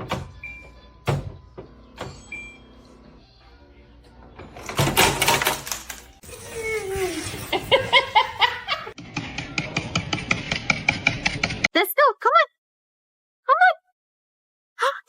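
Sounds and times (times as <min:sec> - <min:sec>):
person laughing: 0:07.4 - 0:09.0.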